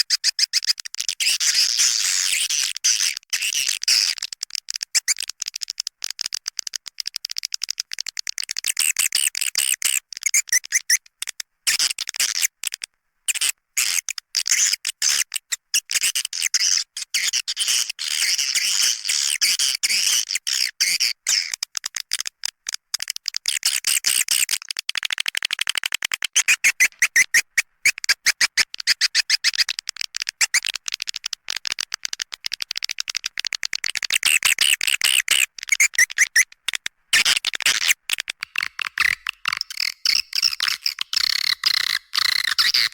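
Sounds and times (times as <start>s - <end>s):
swiftlet twittering chirps: 38.6s - 42.9s.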